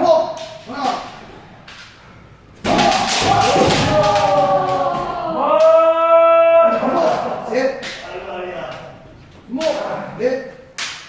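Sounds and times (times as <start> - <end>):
people shouting: 2.6 - 8.8.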